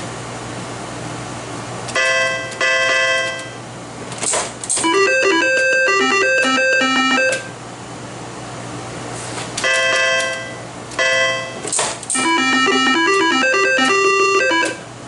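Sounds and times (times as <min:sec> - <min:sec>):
low steady hum: 0:04.8 - 0:15.0
rapid electronic beeps melody: 0:04.9 - 0:07.4, 0:12.2 - 0:14.8.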